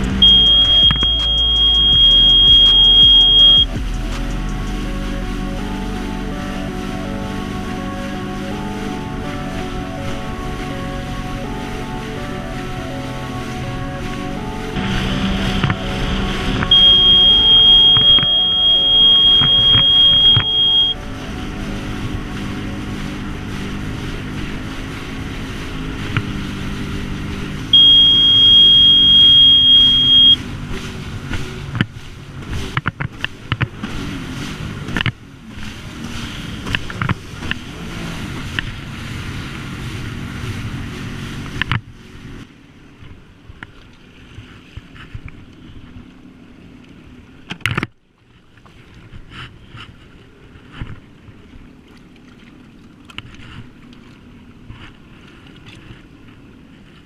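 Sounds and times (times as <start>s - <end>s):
wind noise: 0.0s - 13.1s
jet ski engine running: 0.0s - 57.0s
water noise: 0.0s - 57.0s
loud high beep: 0.2s - 4.3s, 16.6s - 21.0s, 27.8s - 30.4s.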